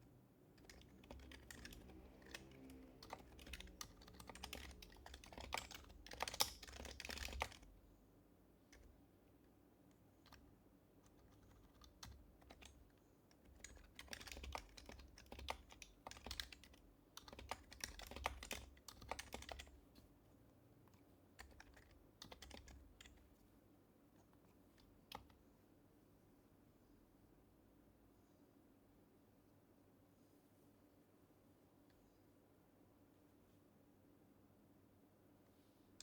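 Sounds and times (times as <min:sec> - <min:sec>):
keyboard typing: 0:00.5 - 0:07.7, 0:10.2 - 0:20.1, 0:20.9 - 0:23.3.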